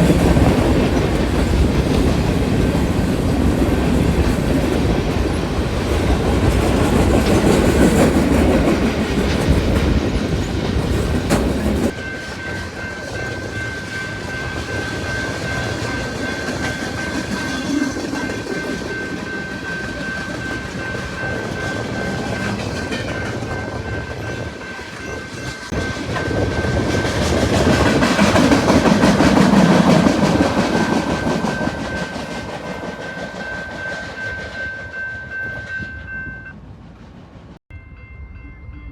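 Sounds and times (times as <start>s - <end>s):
train wheels clacking over rails: 0.0s - 35.8s.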